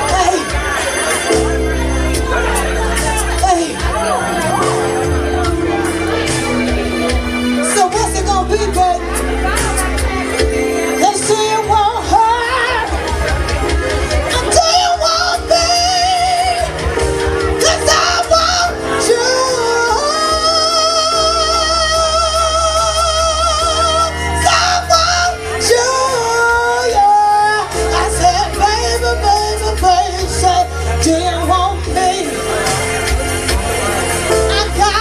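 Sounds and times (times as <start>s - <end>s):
live band music: 0.0s - 35.0s
woman singing: 11.0s - 13.0s.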